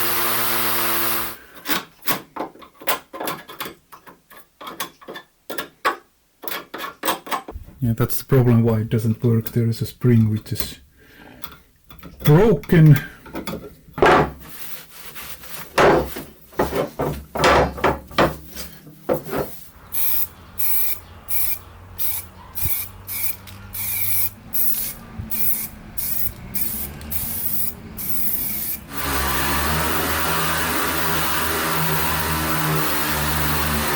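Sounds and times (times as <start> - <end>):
parts knocking and clicking: 1.6 - 7.8, 11.4 - 14.4, 15.7 - 29.2
motor running: 19.9 - 33.9.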